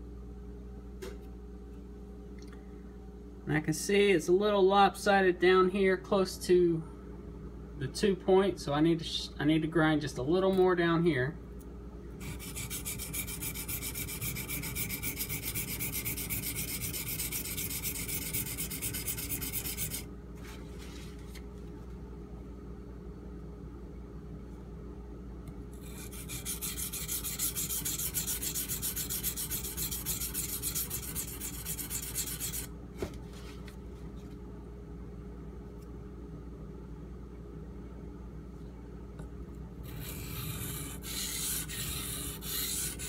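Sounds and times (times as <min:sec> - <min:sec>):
blade grinding on whetstone: 0:12.2 - 0:20.0, 0:25.8 - 0:32.7, 0:39.9 - 0:43.0.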